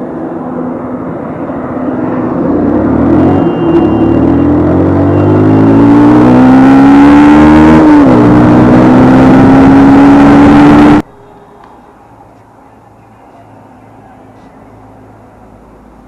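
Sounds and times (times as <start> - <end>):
motorcycle engine accelerating: 2.2 - 11.0.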